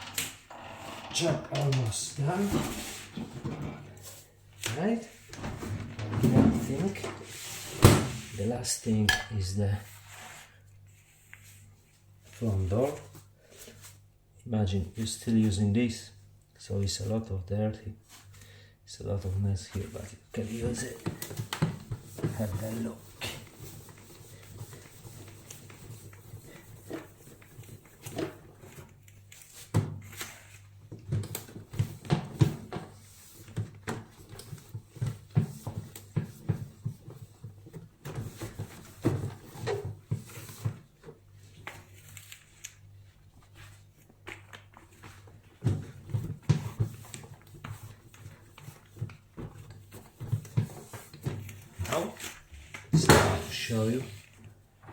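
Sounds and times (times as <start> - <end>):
cloth rubbing on microwave door: 0.5 - 9.0, 19.6 - 28.8.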